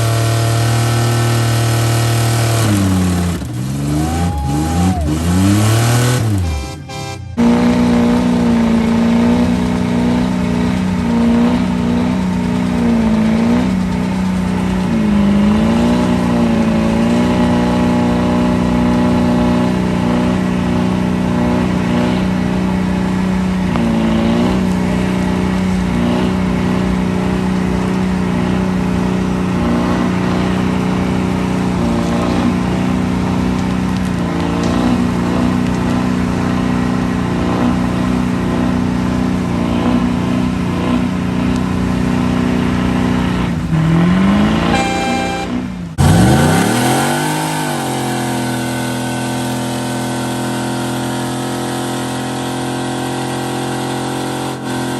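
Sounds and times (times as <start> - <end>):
truck engine at high revs: 0.0 - 54.9.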